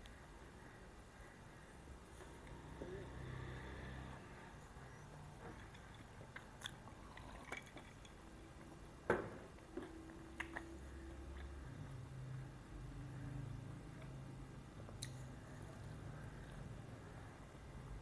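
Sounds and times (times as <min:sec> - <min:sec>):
close chewing: 0:05.5 - 0:08.7, 0:09.7 - 0:11.8
sharp mouth clicks and crunches: 0:09.8 - 0:10.8, 0:14.9 - 0:15.2.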